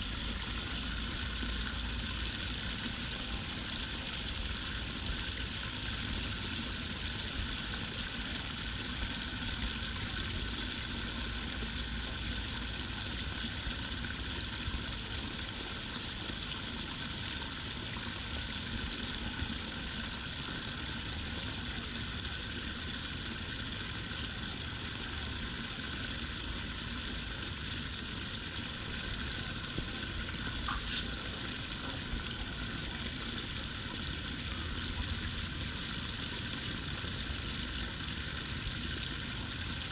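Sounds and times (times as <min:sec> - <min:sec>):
water rushing: 0:26.9 - 0:39.9.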